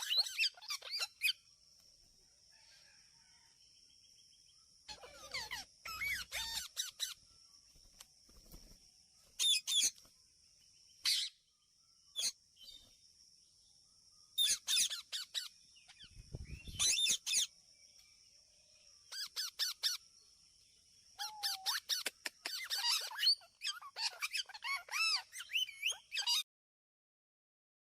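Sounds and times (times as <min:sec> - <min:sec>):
parakeets chirping shrilly: 0:00.0 - 0:01.4, 0:04.9 - 0:07.2, 0:09.4 - 0:09.9, 0:11.0 - 0:11.4, 0:14.4 - 0:17.5, 0:19.1 - 0:20.0, 0:21.2 - 0:26.4.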